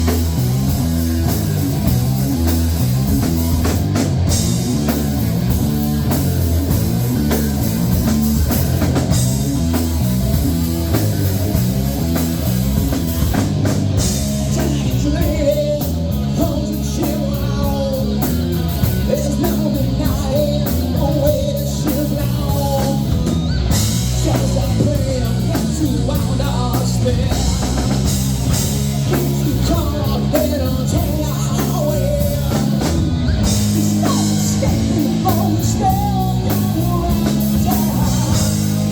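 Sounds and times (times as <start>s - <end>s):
bass guitar: 0.0s - 38.9s
drum kit: 0.0s - 38.9s
electric guitar: 0.0s - 38.9s
person singing: 14.5s - 23.3s, 29.1s - 38.9s.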